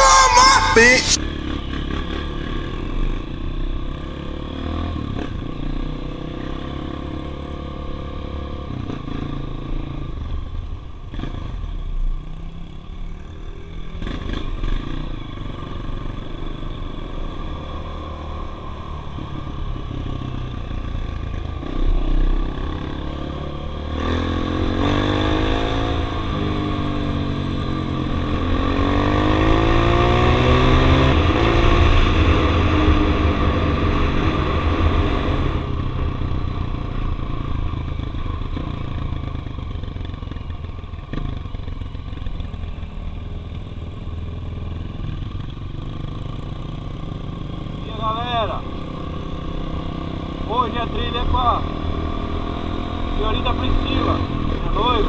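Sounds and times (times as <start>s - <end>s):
motorcycle engine revving: 12.3s - 55.0s.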